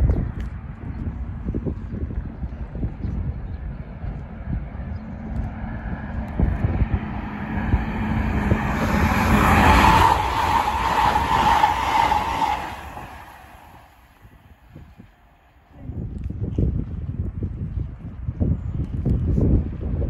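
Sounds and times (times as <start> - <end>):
high whine of train: 0.0 - 16.3
high-speed train passing: 3.6 - 15.7.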